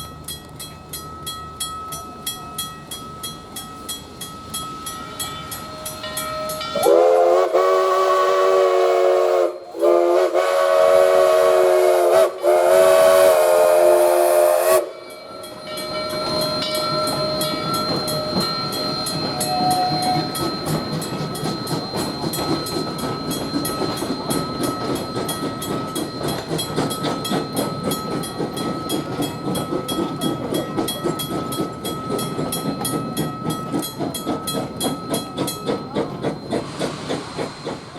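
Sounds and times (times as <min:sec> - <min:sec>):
crossing bell ringing: 0:00.0 - 0:08.6, 0:11.2 - 0:37.0
train hiss and rumble: 0:00.0 - 0:37.9
steam locomotive whistle: 0:06.5 - 0:15.1, 0:19.1 - 0:20.8.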